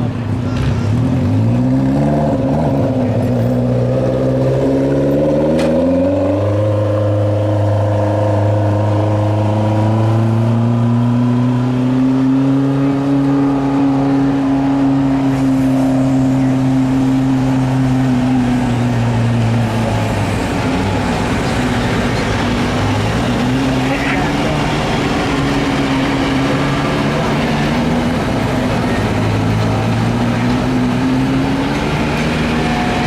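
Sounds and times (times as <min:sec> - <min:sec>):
lawn tractor engine revving: 0:00.8 - 0:33.0.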